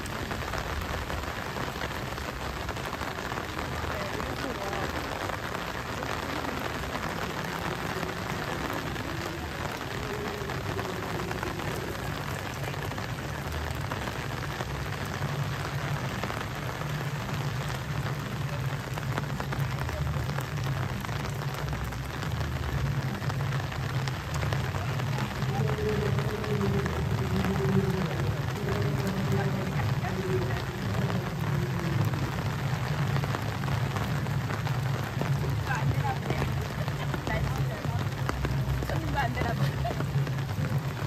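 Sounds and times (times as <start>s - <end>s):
rain on wet paving: 0.0s - 41.0s.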